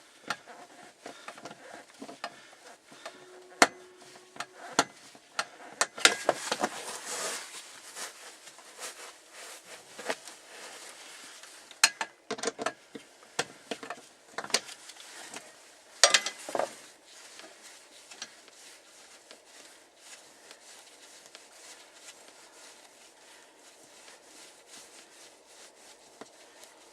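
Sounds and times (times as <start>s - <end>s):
small screws clinking: 16.0s - 16.5s.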